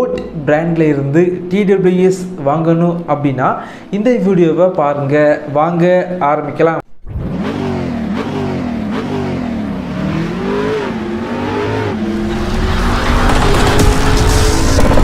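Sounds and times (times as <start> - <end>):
engine revving: 7.0 - 15.0
rushing noise: 10.5 - 15.0.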